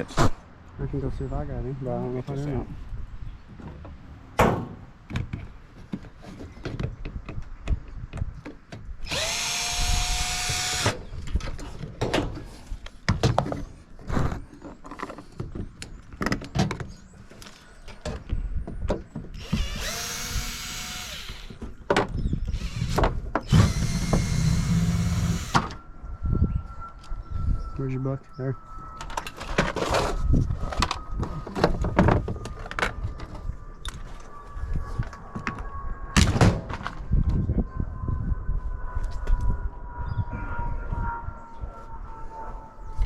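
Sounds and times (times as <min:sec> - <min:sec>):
power drill whine: 0:09.0 - 0:11.1, 0:19.4 - 0:21.6, 0:22.5 - 0:25.8.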